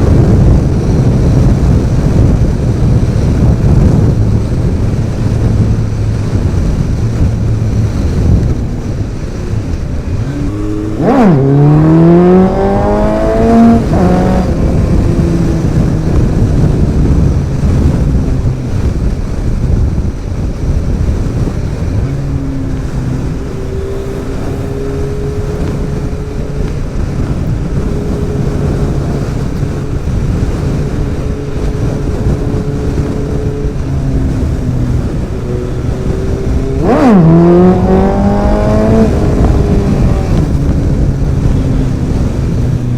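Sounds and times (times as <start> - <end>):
motorcycle engine revving: 0.0 - 42.9
wind and road noise: 0.0 - 42.9.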